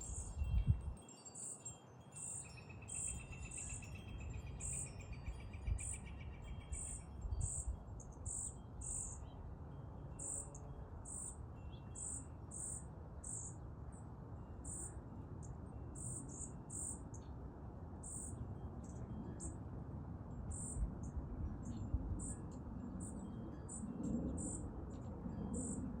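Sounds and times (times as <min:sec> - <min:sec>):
cricket trill: 0:00.0 - 0:09.3, 0:10.2 - 0:13.6, 0:14.6 - 0:17.3, 0:18.0 - 0:19.6, 0:20.5 - 0:21.2, 0:22.2 - 0:24.7, 0:25.4 - 0:26.0.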